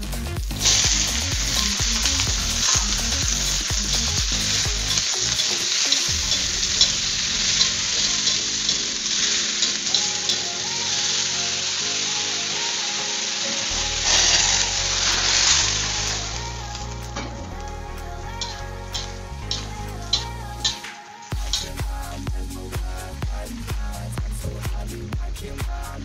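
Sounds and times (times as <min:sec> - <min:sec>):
vegetables sizzling in hot oil: 0:00.0 - 0:24.0
water added to hot wok: 0:00.4 - 0:17.0
metal spatula scraping wok: 0:00.6 - 0:11.4, 0:13.8 - 0:16.4.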